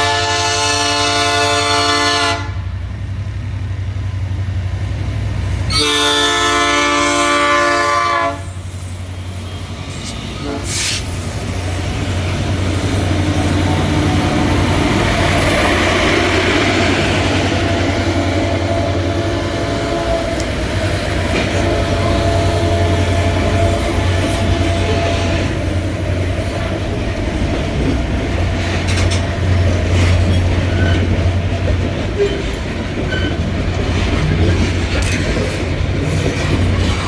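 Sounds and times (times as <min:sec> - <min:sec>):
locomotive horn blasts: 0:00.0 - 0:02.7, 0:05.7 - 0:08.6, 0:10.0 - 0:11.0, 0:18.5 - 0:20.6, 0:21.4 - 0:25.7
train wheels rumbling on rails: 0:00.0 - 0:37.0.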